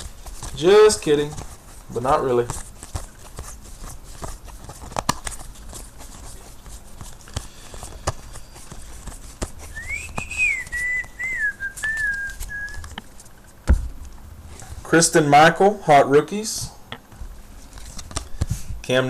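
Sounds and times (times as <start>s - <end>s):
cards being handled: 0.0s - 15.0s, 17.1s - 18.8s
person whistling a tune: 9.7s - 12.9s.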